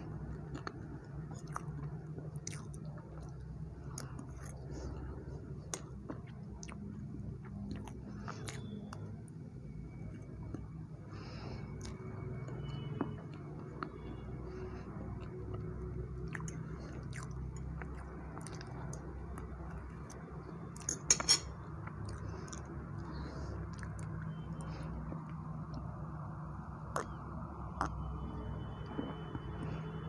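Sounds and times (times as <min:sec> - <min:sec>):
mouth chewing cake: 0:00.0 - 0:21.0, 0:21.6 - 0:30.0
metal fork clinking on plate: 0:20.9 - 0:21.6.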